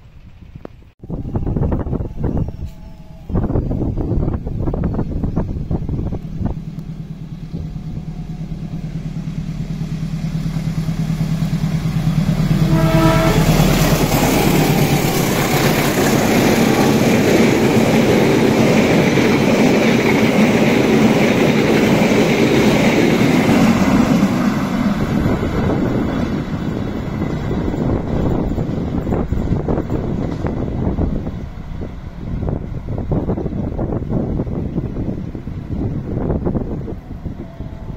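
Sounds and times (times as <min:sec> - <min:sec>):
locomotive engine drone: 0:00.0 - 0:37.9
train wheels on rails: 0:02.0 - 0:37.9
train horn blast: 0:11.4 - 0:16.6.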